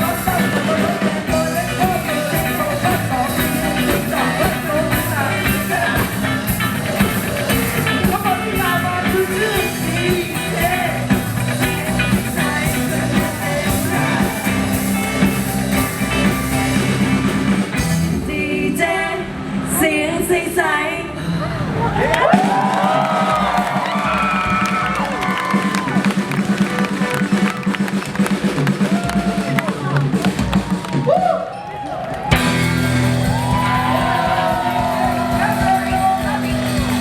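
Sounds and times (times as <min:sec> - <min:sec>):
rock music with singing: 0:00.0 - 0:21.3, 0:32.3 - 0:37.0.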